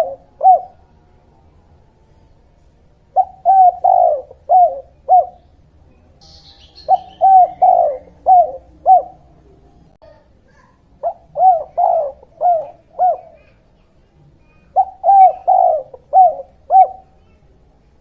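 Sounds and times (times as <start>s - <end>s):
dove cooing: 0.0s - 1.0s, 3.0s - 5.5s, 6.3s - 9.7s, 11.0s - 13.7s, 14.6s - 17.4s
faint high bird chirp: 0.0s - 17.9s.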